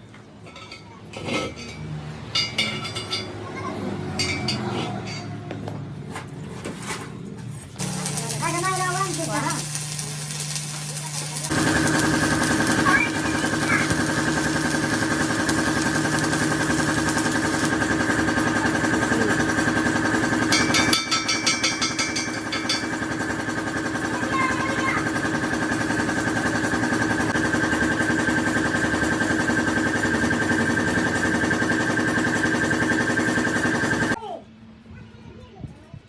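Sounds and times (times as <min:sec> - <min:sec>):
rapid rattle of high clicks: 0:07.8 - 0:34.2
engine idling: 0:11.4 - 0:34.2.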